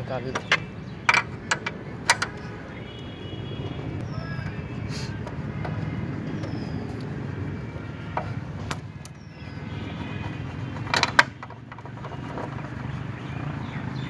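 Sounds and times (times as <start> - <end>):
metal clinks and knocks: 0.2 - 2.4, 10.2 - 12.7.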